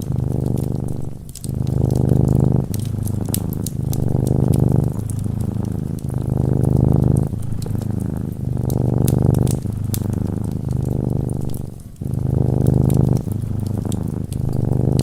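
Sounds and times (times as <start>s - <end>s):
cat purring: 0.0s - 15.0s
fireplace crackles: 0.0s - 15.0s.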